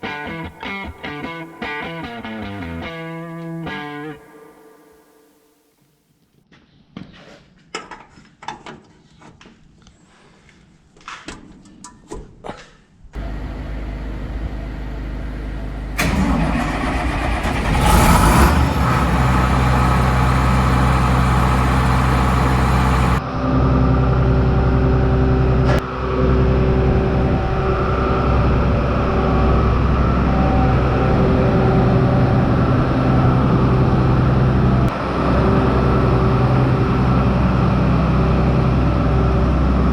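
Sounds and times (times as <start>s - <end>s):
combine engine cranking and running: 13.2s - 23.2s
low drone: 13.2s - 23.2s.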